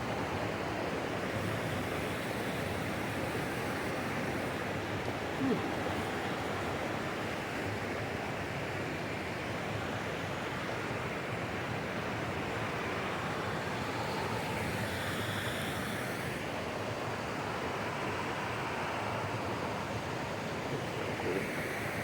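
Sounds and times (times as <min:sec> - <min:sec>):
water rushing in a cascade: 0:00.0 - 0:22.0.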